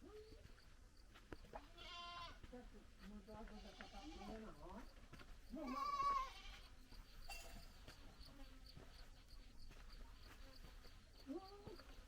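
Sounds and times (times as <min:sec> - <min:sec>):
goat bleating: 0:01.7 - 0:02.4, 0:05.6 - 0:06.6.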